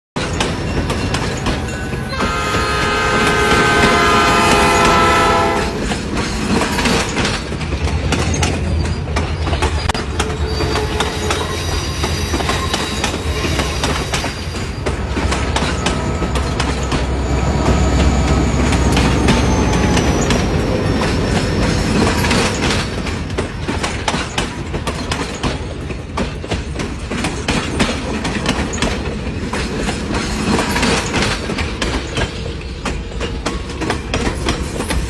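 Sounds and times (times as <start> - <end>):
train rumble: 0.2 - 35.0
wheels clicking on rails: 0.2 - 35.0
train horn: 2.1 - 5.9.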